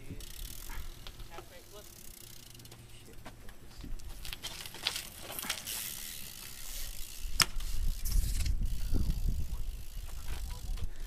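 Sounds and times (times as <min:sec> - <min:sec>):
bike tyres and shoes scuffing: 0:02.7 - 0:08.6.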